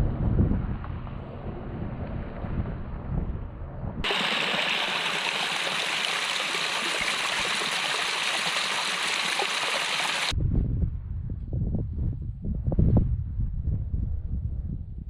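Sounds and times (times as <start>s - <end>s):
running water rushing: 4.0s - 10.3s.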